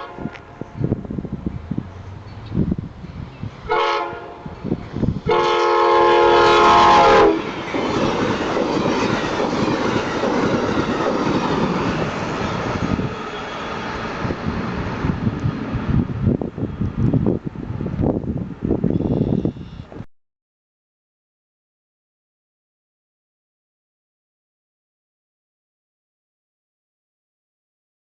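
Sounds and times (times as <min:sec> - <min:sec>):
train horn blasts: 0:00.0 - 0:00.8, 0:03.6 - 0:04.6, 0:05.2 - 0:07.6, 0:19.0 - 0:19.9
train wheels on rails: 0:04.4 - 0:19.0.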